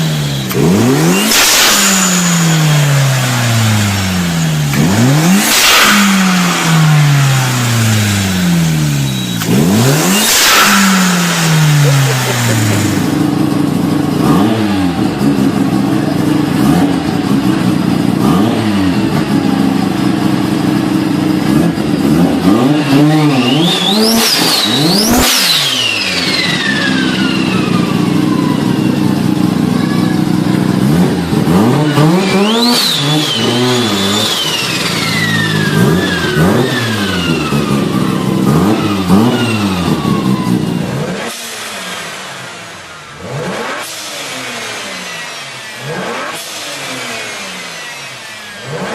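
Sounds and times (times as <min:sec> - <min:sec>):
car engine revving: 0:00.0 - 0:48.9
turbo whistle: 0:08.9 - 0:11.6, 0:23.0 - 0:28.9, 0:32.2 - 0:37.8.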